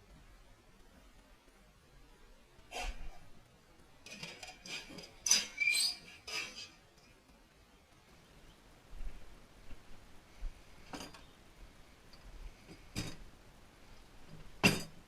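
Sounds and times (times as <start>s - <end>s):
hand tool scraping metal: 4.1s - 6.8s
short squeaky scrapes: 4.6s - 6.8s.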